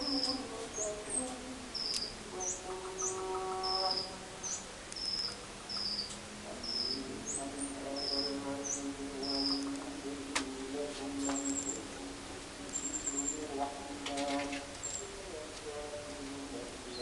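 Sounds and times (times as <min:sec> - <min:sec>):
lower whistled bird notes: 0:00.0 - 0:09.8, 0:11.2 - 0:12.0, 0:12.6 - 0:15.2
songbirds high chirps: 0:00.0 - 0:17.0.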